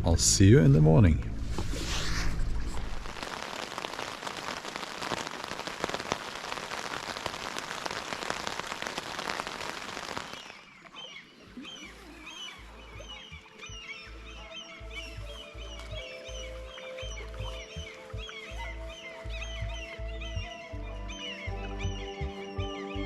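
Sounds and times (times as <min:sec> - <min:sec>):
crackling patter of water: 0:02.6 - 0:20.1
small birds chirping: 0:03.2 - 0:23.0.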